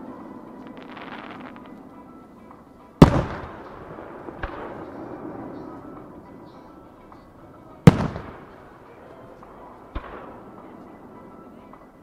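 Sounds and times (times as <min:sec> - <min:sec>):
firework bangs: 0:00.6 - 0:01.8, 0:03.0 - 0:05.3.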